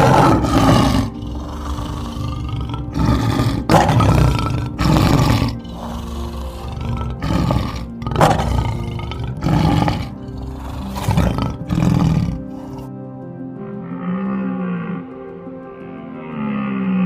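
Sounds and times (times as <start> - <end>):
big cat calling loudly: 0.0 - 12.9
background music: 0.0 - 17.0.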